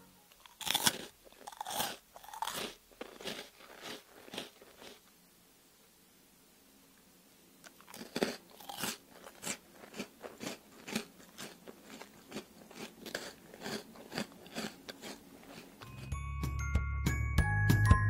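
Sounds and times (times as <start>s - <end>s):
crunching toasted bread: 0.4s - 5.1s, 7.6s - 16.1s
glockenspiel music jingle: 15.8s - 18.0s.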